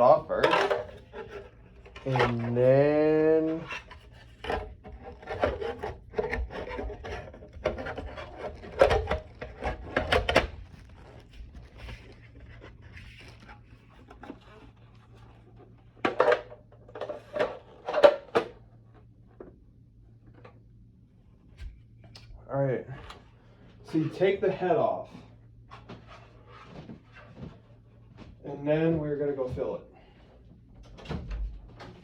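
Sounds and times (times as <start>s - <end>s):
knocks and scrapes: 0.3s - 19.5s
plastic parts knocking and clicking: 0.4s - 2.3s.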